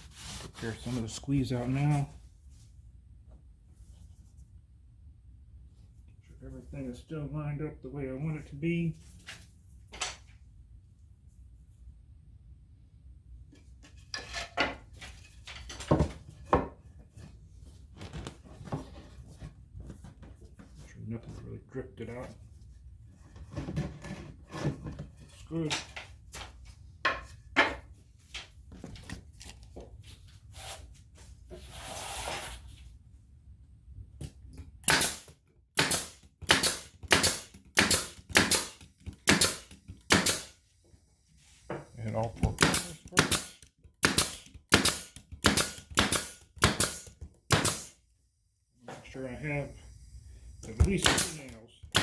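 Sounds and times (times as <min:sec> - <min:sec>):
brad nailer firing: 0:34.8 - 0:40.6, 0:42.5 - 0:48.0, 0:50.8 - 0:52.0.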